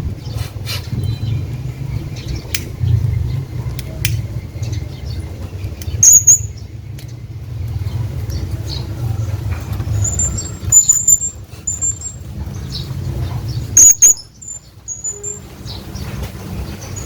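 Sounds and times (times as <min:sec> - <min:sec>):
steady low rumble: 0:00.0 - 0:14.5
parrot shrill calls: 0:06.0 - 0:06.5, 0:13.8 - 0:14.3.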